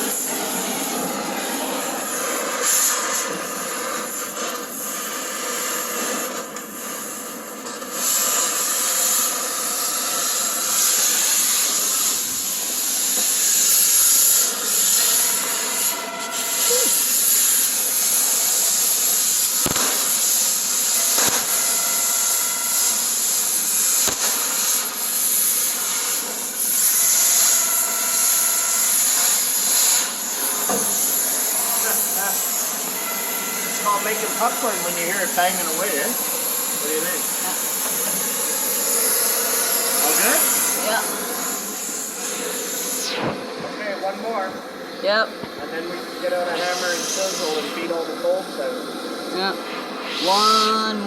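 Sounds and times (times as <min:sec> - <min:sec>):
cutting torch hissing: 0:00.0 - 0:51.0
spitting metal pops: 0:19.5 - 0:21.6, 0:24.0 - 0:24.9.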